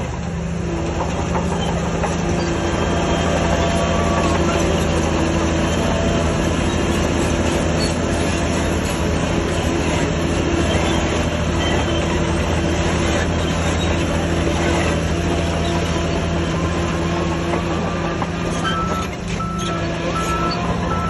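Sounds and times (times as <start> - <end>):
low engine drone: 0.0 - 21.0
metallic clatter and squeal: 0.5 - 21.0
reversing alarm beeping: 18.4 - 21.0.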